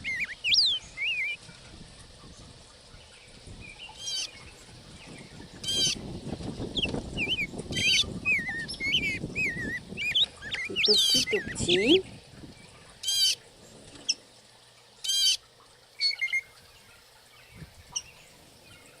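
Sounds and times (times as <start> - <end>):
rapid bird call series: 0.0 - 1.4, 3.9 - 4.4, 5.6 - 6.0, 6.8 - 12.0, 13.0 - 13.4, 15.0 - 17.2
small birds chirping: 0.0 - 1.5, 2.2 - 19.0.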